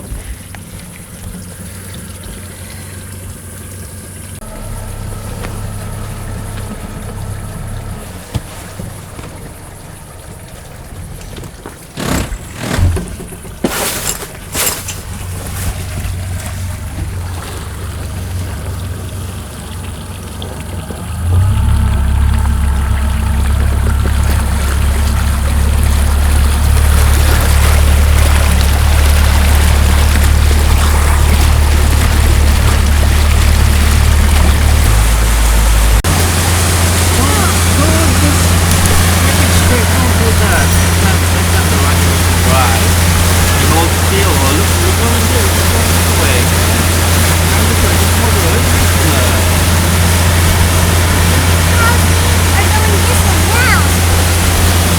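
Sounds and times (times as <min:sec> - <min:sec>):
boat motor running: 0:00.0 - 0:54.9
water rushing: 0:00.0 - 0:54.9
knocks: 0:11.2 - 0:13.8.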